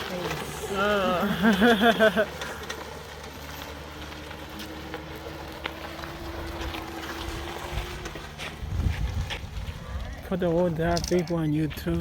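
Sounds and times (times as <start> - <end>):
small aircraft engine drone: 0.0 - 12.0
wind rumble on microphone: 6.3 - 12.0.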